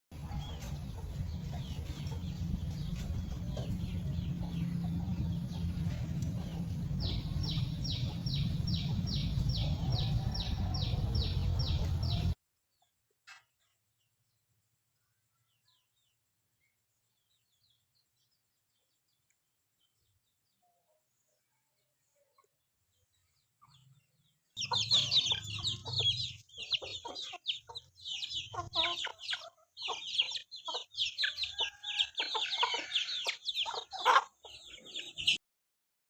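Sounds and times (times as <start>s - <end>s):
strong low rumble: 0.1s - 12.4s
bird chirping: 0.2s - 12.4s, 23.0s - 35.4s
descending bird chirps: 24.6s - 35.4s.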